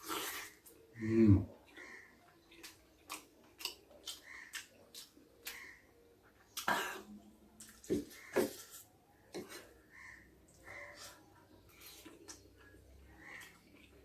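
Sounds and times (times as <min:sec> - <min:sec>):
wet chewing and lip smacks: 0:01.7 - 0:05.7.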